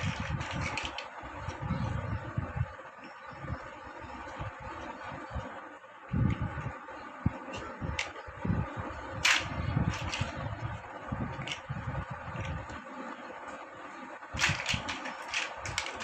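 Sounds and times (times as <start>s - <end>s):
plastic bricks clicking together: 0.0s - 1.1s, 7.5s - 8.2s, 9.2s - 10.4s, 11.4s - 11.6s, 14.4s - 16.0s
faint steady hum: 0.0s - 16.0s.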